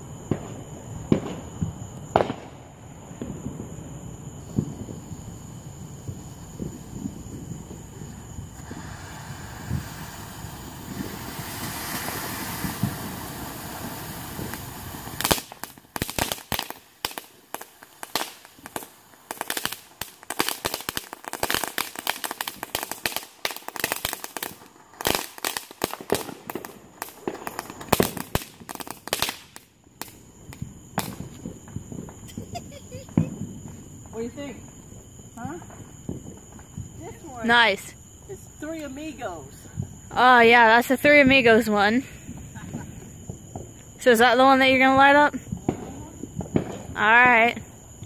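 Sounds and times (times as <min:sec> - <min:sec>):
fireworks hissing: 0:00.0 - 0:48.0
firecracker pops and cracks: 0:00.2 - 0:03.6, 0:08.5 - 0:33.8, 0:45.6 - 0:47.0.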